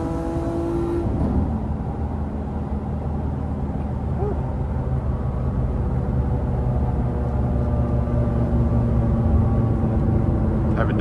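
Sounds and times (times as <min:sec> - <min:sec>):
car engine and exhaust droning: 0:00.0 - 0:11.0.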